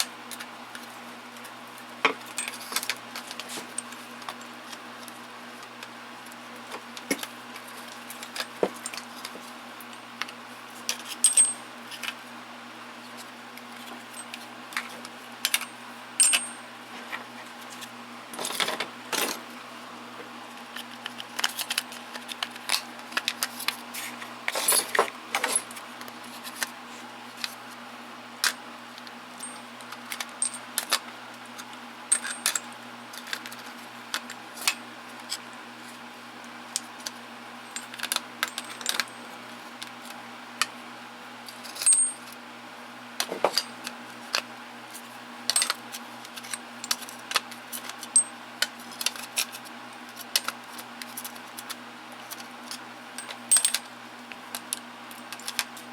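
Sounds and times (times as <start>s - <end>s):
metal tools clinking and rattling: 11.1s - 11.6s, 15.5s - 16.7s, 24.5s - 25.7s, 29.4s - 29.7s, 30.4s - 30.6s, 32.1s - 33.3s, 37.7s - 39.2s, 41.6s - 42.3s, 43.4s - 43.8s, 53.2s - 53.9s.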